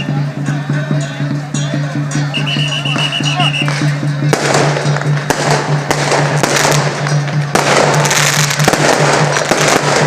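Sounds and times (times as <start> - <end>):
firecrackers popping: 2.4 - 10.0.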